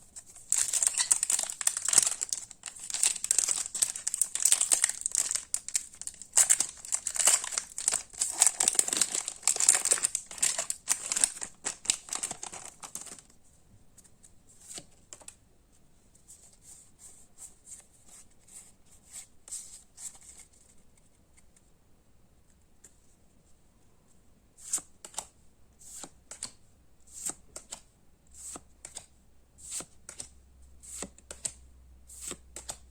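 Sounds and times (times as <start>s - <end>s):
cards being handled: 0.1s - 13.3s
plastic wrapper crinkling and tearing: 0.2s - 13.3s.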